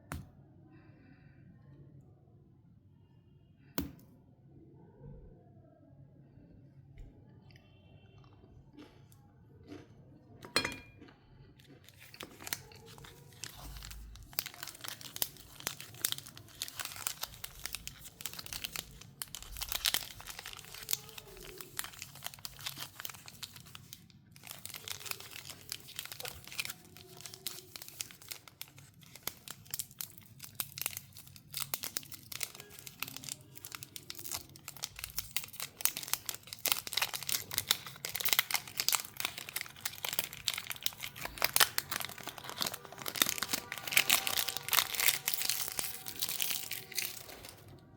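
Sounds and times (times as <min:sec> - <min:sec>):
wrappers torn and crinkled: 0:11.6 - 0:47.8.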